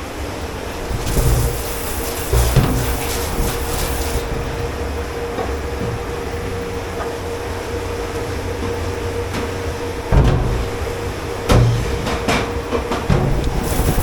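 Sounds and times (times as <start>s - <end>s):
faint constant tone: 0.0s - 14.0s
low machinery hum: 0.0s - 14.0s
water spray hissing: 0.8s - 4.6s, 13.3s - 14.0s.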